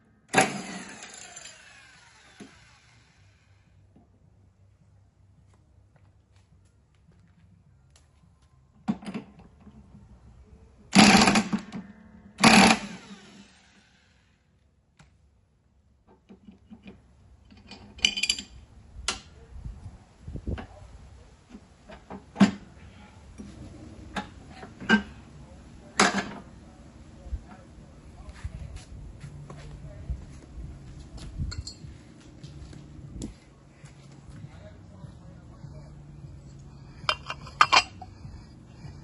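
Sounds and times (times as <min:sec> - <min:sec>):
metal tools clanking: 0:17.5 - 0:18.6, 0:31.5 - 0:31.9, 0:36.8 - 0:38.2.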